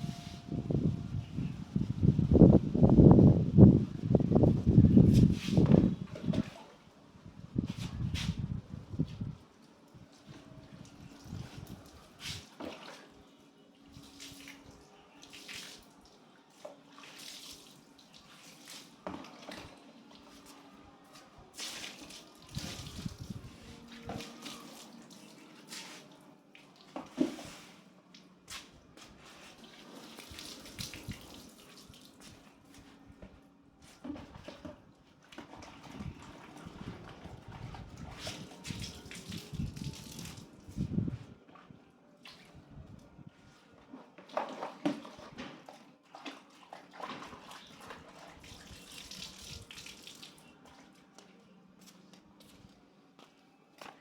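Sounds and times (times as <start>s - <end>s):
water running and splashing: 46.8s - 50.4s.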